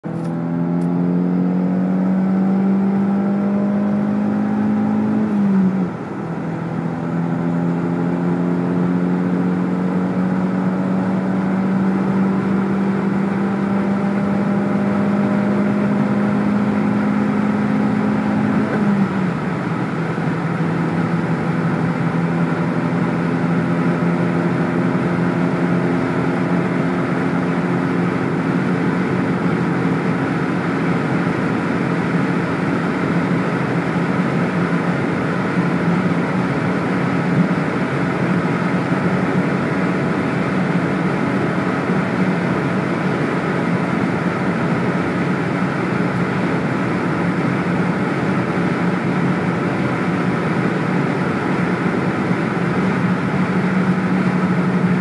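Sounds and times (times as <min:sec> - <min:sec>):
car engine at full throttle: 0:00.0 - 0:55.0.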